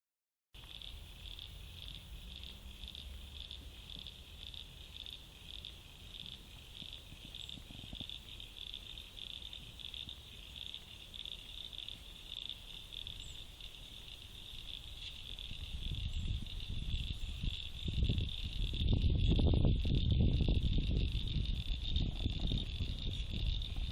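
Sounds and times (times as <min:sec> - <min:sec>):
insects calling: 0:00.6 - 0:23.9
low rumble: 0:15.4 - 0:23.9.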